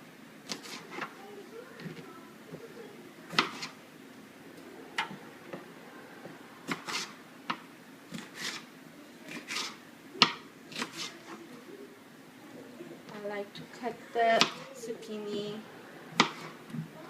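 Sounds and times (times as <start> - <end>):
knife chopping on cutting board: 16.2 - 16.5.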